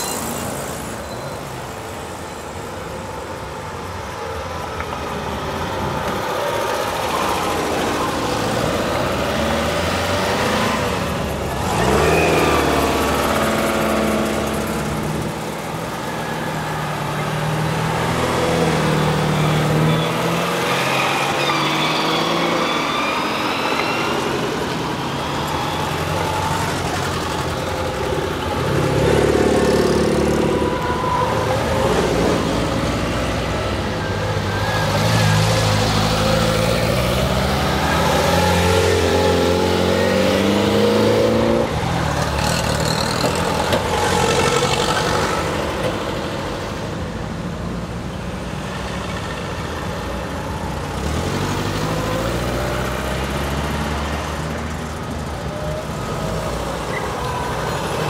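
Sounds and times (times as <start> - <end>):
small cars driving past: 5.6 - 47.1.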